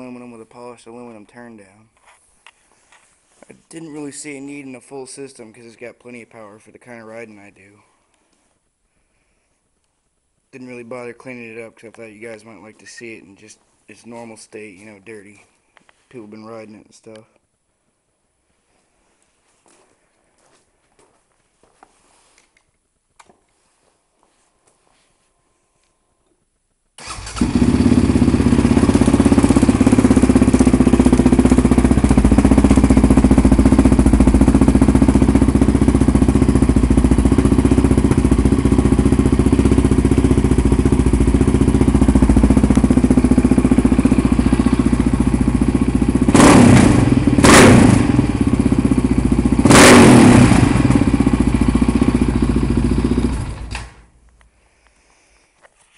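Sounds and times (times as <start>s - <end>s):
engine idling: 27.0s - 53.7s.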